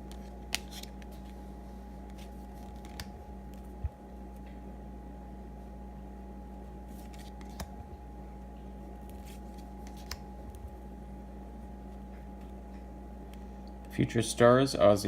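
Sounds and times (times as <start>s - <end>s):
trading cards rustling: 0.0s - 4.5s, 6.8s - 7.7s, 8.9s - 10.8s
low steady hum: 0.0s - 15.0s
card clicks: 0.1s - 1.3s, 2.1s - 3.1s, 7.0s - 7.7s, 9.1s - 10.2s.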